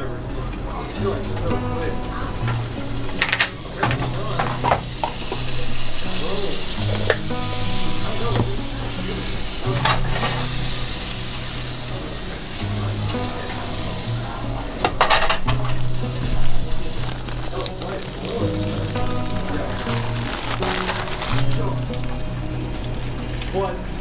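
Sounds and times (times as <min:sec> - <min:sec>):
quiet background music: 0:00.0 - 0:24.0
meat sizzling in a frying pan: 0:01.3 - 0:24.0
utensil scraping a pan: 0:01.4 - 0:14.0.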